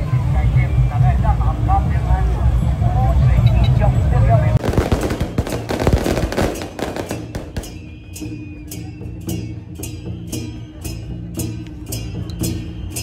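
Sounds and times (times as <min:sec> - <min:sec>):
firecrackers crackling: 0:04.6 - 0:08.0
sharp percussion strikes: 0:04.6 - 0:13.0.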